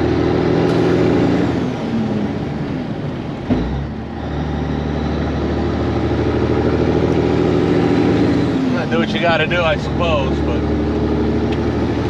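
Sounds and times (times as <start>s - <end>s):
truck diesel engine drone: 0.0s - 12.0s.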